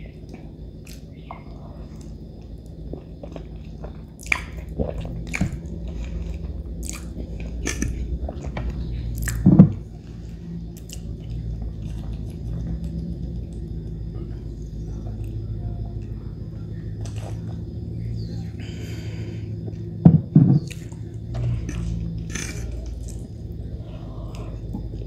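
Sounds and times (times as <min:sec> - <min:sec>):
wet chewing mouth clicks: 0:03.2 - 0:08.5, 0:09.2 - 0:09.4
low thump: 0:20.0 - 0:20.7.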